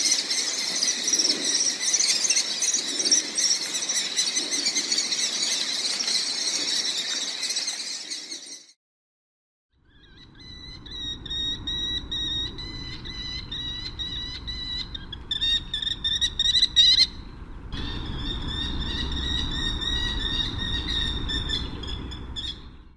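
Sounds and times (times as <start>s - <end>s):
bird of prey piping calls: 0.0s - 8.7s, 9.8s - 22.8s
low rumbling background: 9.8s - 22.9s.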